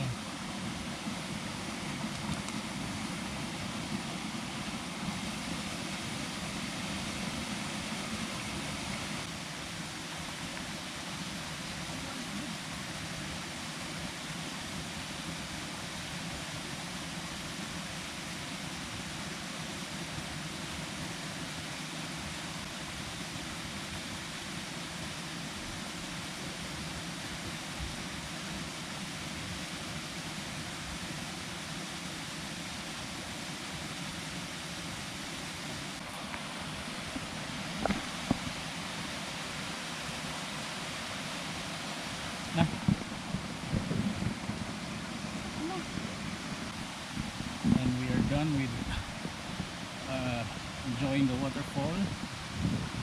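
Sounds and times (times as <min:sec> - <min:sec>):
waterfall rushing into pool: 0:00.0 - 0:53.0.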